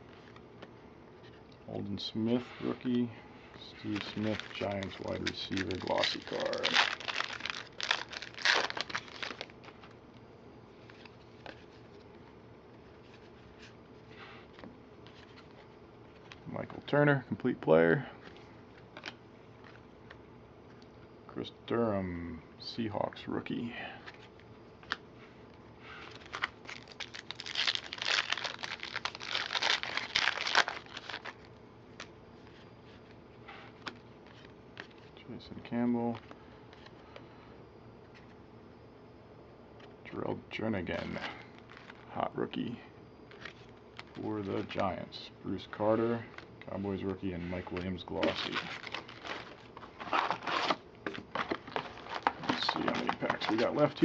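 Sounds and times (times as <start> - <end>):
wrapper crinkling and tearing: 3.7 - 9.8, 26.1 - 31.5, 48.2 - 54.0
faint clicks of cards handled: 18.2 - 21.0, 24.0 - 25.6.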